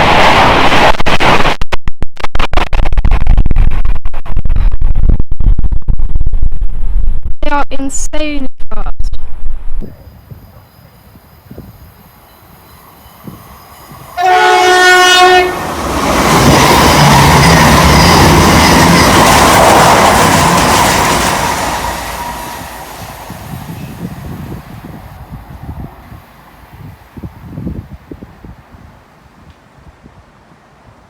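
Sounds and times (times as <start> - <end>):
train passing at speed: 9.8 - 31.0
train horn blast: 14.1 - 19.2.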